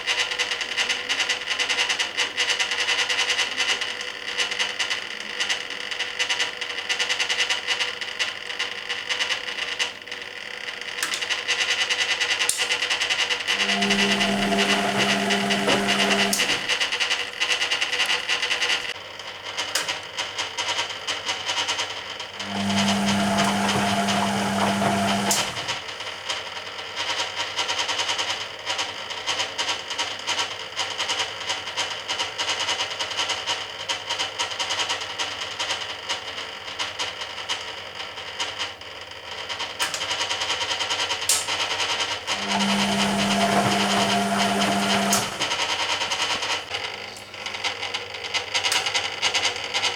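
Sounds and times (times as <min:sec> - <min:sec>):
washing machine drum motor hum: 0:13.0 - 0:19.0, 0:22.4 - 0:26.2, 0:39.8 - 0:47.6.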